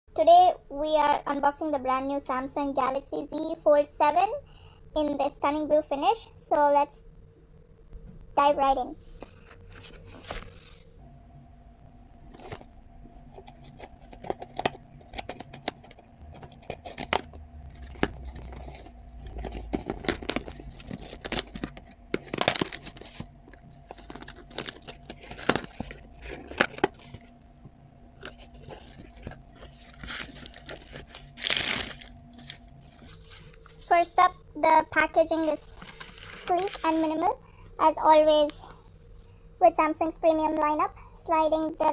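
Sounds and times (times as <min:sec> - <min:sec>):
faint steady hum: 0:00.1 - 0:41.9
packaging tearing: 0:13.4 - 0:27.3, 0:28.2 - 0:33.9, 0:35.4 - 0:37.2.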